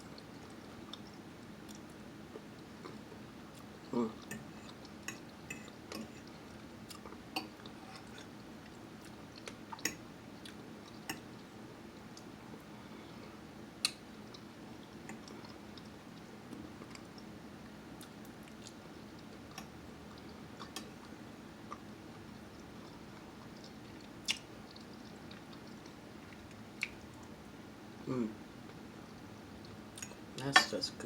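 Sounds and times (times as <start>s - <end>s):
person chewing food: 0.1s - 27.4s
mouth clicks and smacks: 23.5s - 27.3s.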